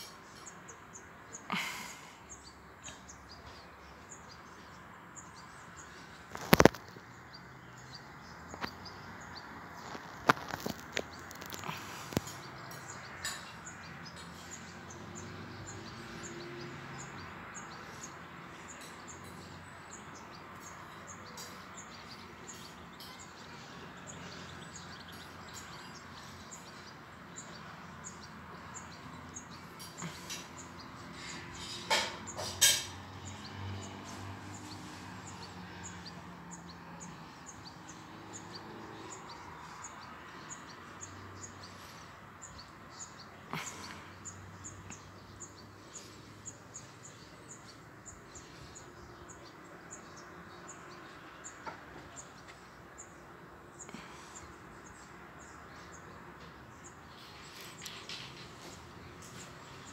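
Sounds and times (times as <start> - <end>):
faint outdoor background: 0.0 - 59.9
small birds chirping: 0.0 - 59.9.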